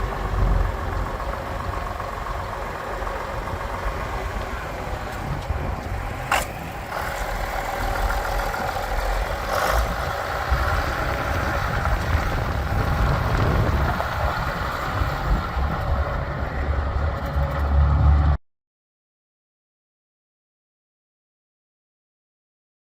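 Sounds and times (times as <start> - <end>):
tractor engine running: 0.0 - 18.4.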